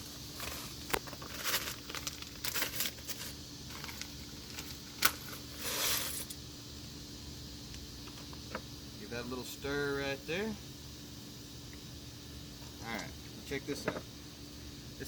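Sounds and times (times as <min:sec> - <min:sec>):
faint steady hum: 0:00.0 - 0:15.0
plastic packets crinkling: 0:01.1 - 0:05.1.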